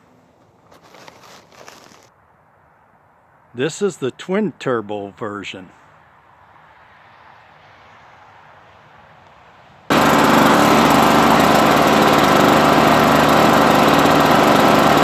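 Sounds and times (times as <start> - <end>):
small engine running: 9.9 - 15.0.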